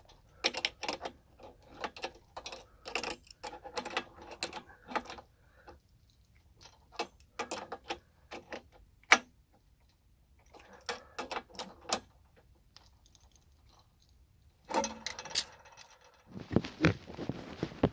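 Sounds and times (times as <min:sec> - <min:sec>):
sharp metallic clicks and clinks: 0:14.7 - 0:16.3.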